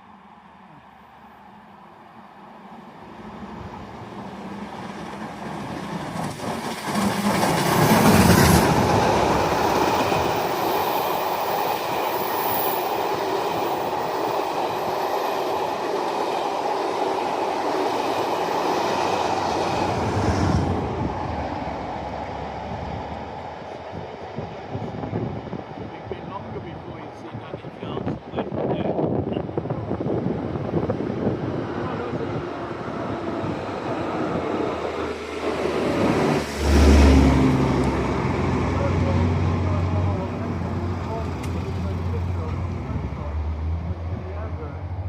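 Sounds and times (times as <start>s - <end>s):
diesel locomotive passing: 0.0s - 45.0s
steam locomotive passing: 0.0s - 45.0s
train coaches rumbling: 0.0s - 45.0s
wheels clickety-clack: 4.8s - 10.5s.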